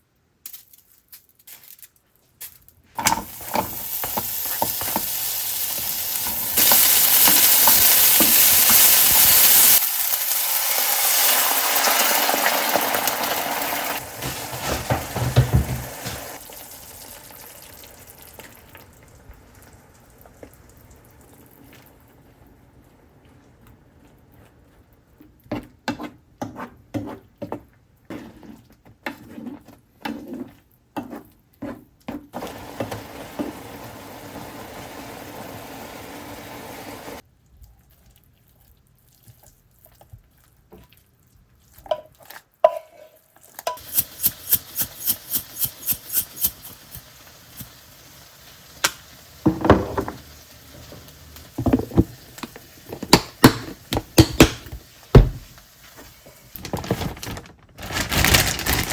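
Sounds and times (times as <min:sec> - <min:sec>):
steady hiss: 0:43.8 - 0:49.4.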